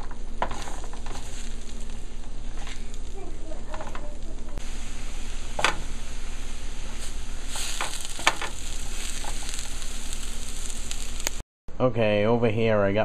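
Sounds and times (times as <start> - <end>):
wooden spoon scraping a pan: 0.0 - 4.6, 6.8 - 10.3
food sizzling in a frying pan: 0.0 - 11.4.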